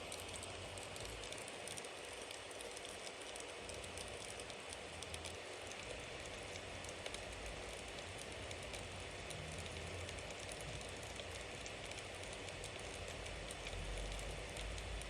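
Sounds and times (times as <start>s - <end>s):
wood crackling and popping: 0.0s - 15.0s.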